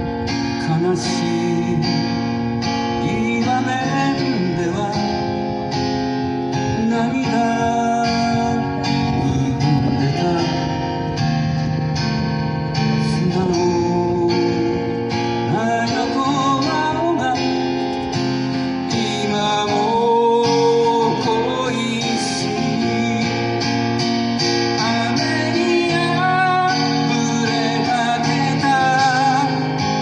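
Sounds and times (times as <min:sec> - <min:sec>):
acoustic guitar strumming: 0:00.0 - 0:30.0
person singing: 0:18.7 - 0:23.6, 0:24.7 - 0:30.0.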